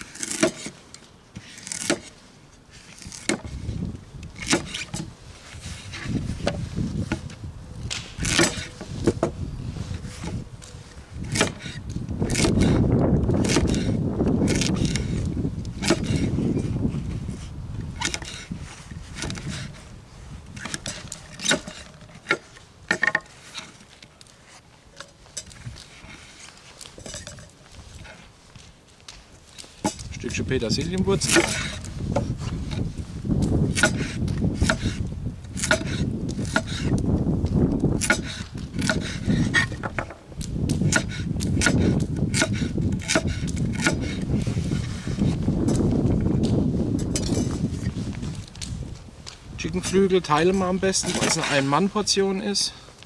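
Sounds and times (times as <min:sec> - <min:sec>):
knife scraping vegetable: 0:01.4 - 0:03.7, 0:33.7 - 0:37.0.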